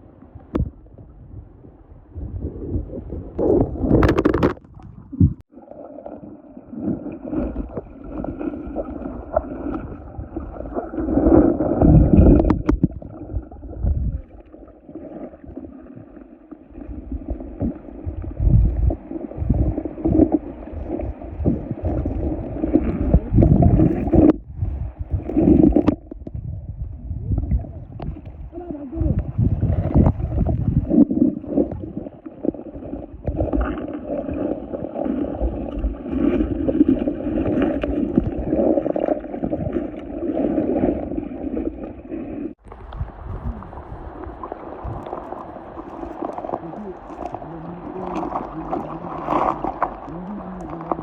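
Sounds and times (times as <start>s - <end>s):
water sloshing around a boat: 27.7s - 51.0s.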